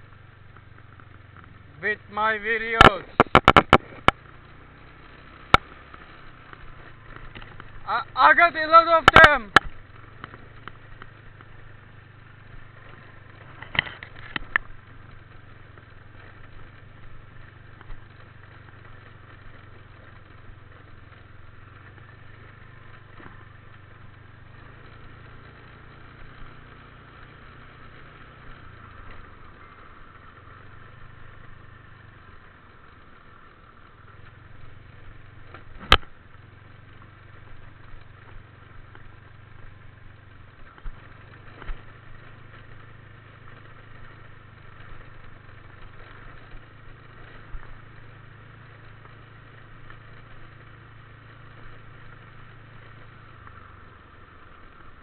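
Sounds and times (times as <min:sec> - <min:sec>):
motorbike engine humming: 0:00.0 - 0:55.0
short clatter: 0:02.8 - 0:04.2.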